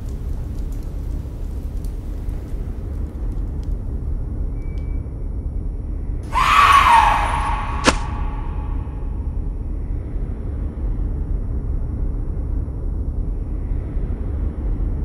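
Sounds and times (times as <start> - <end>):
low rumble: 0.0 - 15.0
woman screaming: 6.3 - 9.0
sharp knock: 7.7 - 8.5.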